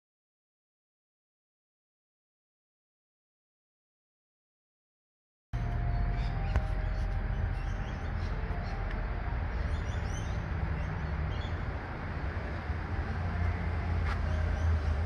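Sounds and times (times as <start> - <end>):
birds chirping: 5.6 - 15.0
low outdoor rumble: 5.6 - 15.0.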